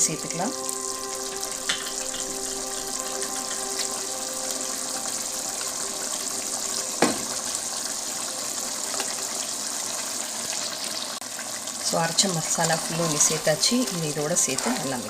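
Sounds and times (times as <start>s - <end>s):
chicken sizzling in a pot: 0.0s - 15.0s
sharp knock: 7.0s - 7.4s.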